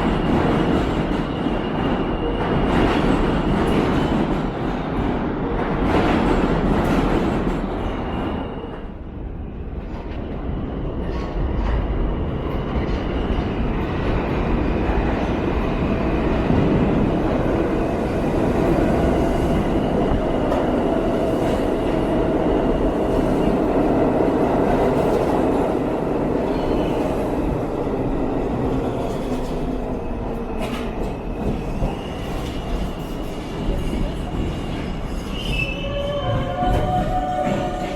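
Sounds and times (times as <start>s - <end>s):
subway train rumbling on rails: 0.0s - 37.9s.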